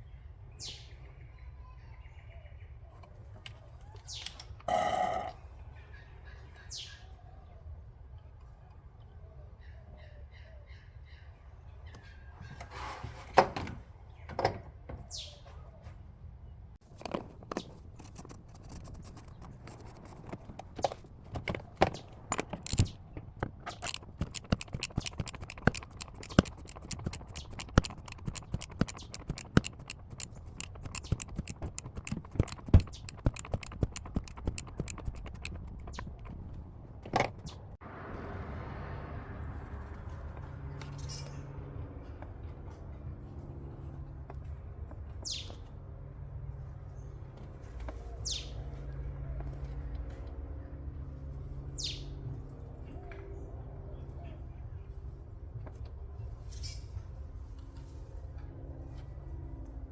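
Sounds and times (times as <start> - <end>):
metal tools clicking and tapping: 20.0 - 36.4.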